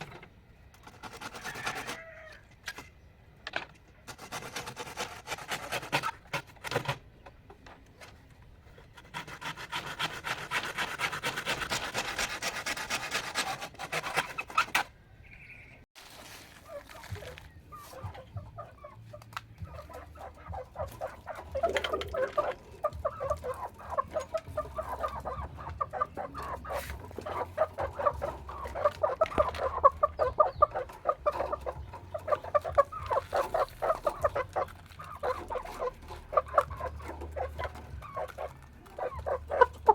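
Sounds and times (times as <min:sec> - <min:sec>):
chickens clucking: 0:00.0 - 0:03.1, 0:16.5 - 0:39.9.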